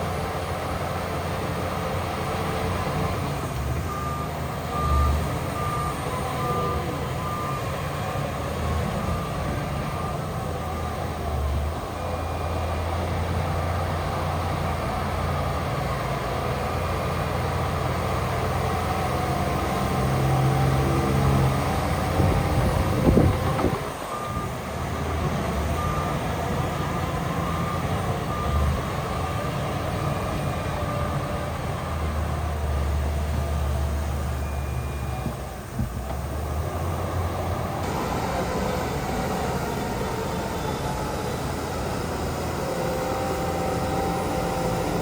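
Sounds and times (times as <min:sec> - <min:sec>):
heavy machinery diesel engine: 0:00.0 - 0:45.0
reversing alarm beeping: 0:03.8 - 0:13.0, 0:20.2 - 0:31.2, 0:34.3 - 0:35.5, 0:37.8 - 0:45.0.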